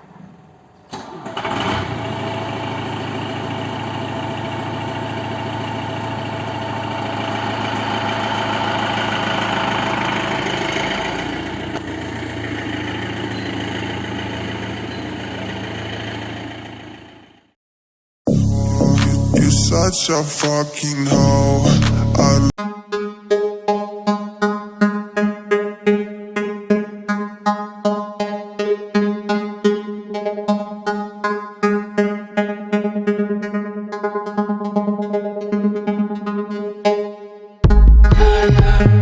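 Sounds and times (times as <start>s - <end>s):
diesel truck engine idling: 2.1s - 17.6s.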